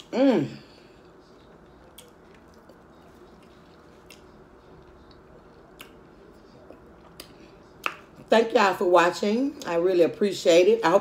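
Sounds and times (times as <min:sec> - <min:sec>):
soft mouth clicks eating: 0:01.9 - 0:06.0, 0:06.6 - 0:08.0.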